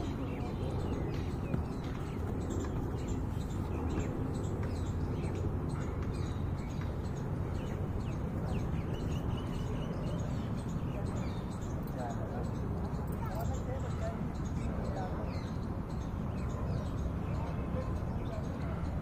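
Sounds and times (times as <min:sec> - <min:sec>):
steady low rumble: 0:00.0 - 0:14.7
birds chirping: 0:00.0 - 0:19.0.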